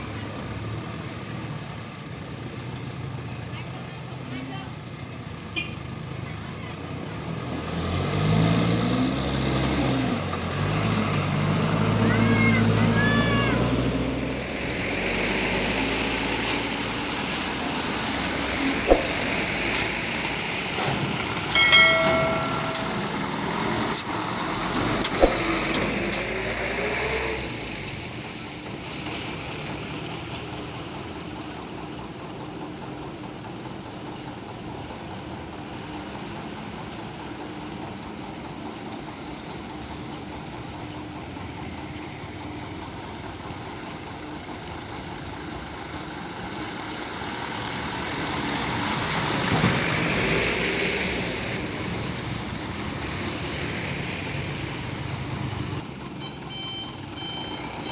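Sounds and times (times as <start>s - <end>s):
truck engine revving: 6.8s - 33.3s
steady engine hum: 8.9s - 57.9s.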